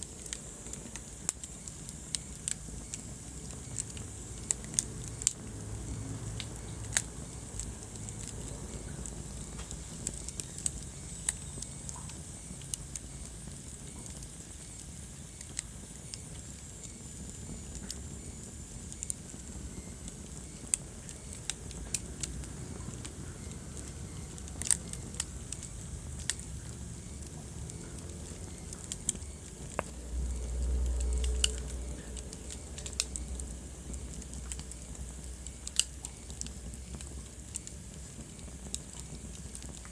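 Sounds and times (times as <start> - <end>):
low rumble of burning: 0.0 - 39.9
wood fire crackling and popping: 0.0 - 39.9.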